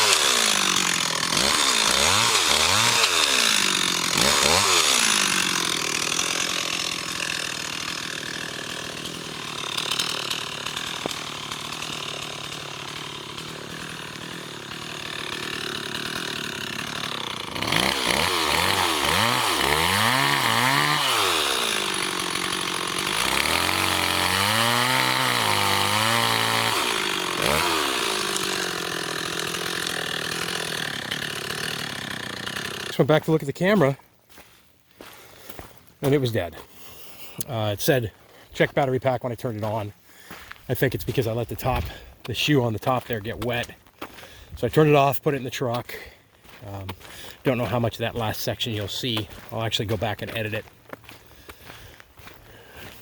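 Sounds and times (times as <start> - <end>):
chainsaw revving: 0.0 - 34.0.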